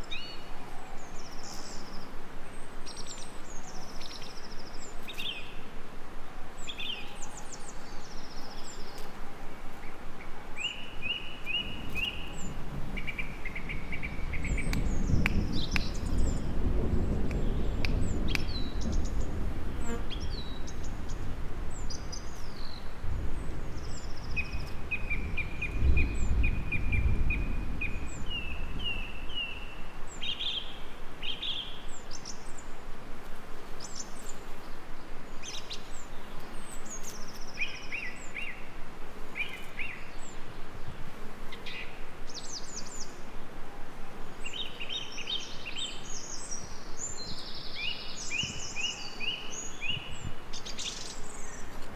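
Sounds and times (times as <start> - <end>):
songbirds chirping and trilling: 0.0 - 32.8, 33.6 - 51.9
gentle rain hissing: 0.0 - 51.9
distant thunder rumbling: 11.5 - 22.0, 23.0 - 29.2.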